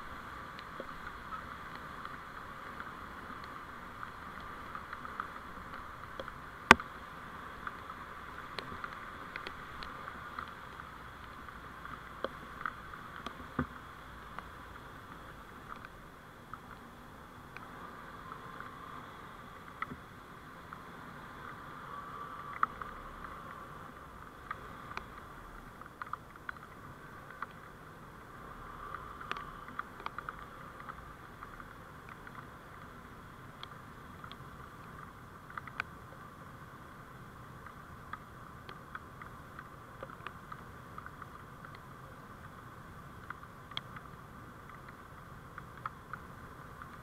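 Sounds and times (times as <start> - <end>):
road noise hum: 0.0 - 47.0
small sharp clicks and rattles: 21.4 - 27.8, 43.2 - 47.0.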